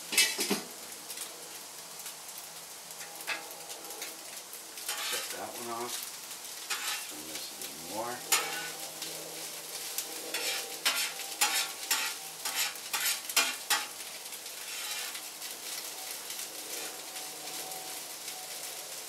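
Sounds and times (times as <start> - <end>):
food sizzling in a pan: 0.0 - 19.0
utensil scraping a pan: 0.1 - 0.7, 3.2 - 3.4, 4.9 - 5.4, 6.7 - 7.2, 8.2 - 15.3.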